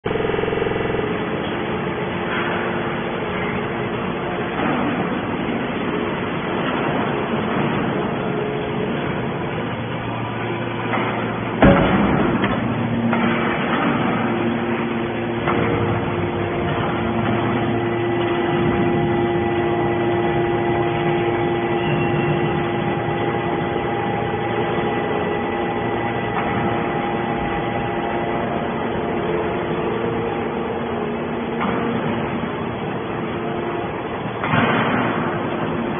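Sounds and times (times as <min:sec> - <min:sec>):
baler machine humming: 0:00.0 - 0:35.9
loud bang: 0:10.6 - 0:25.4.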